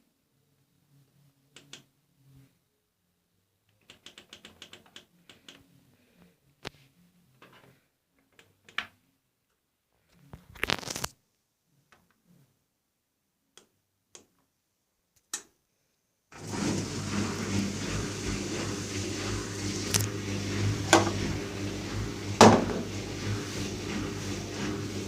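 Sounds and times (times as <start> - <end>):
washing machine hum: 16.3 - 25.0.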